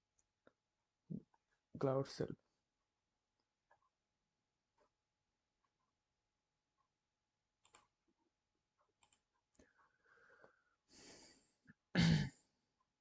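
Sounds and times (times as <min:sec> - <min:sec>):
faint computer clicks: 0:07.6 - 0:07.9, 0:08.9 - 0:09.7.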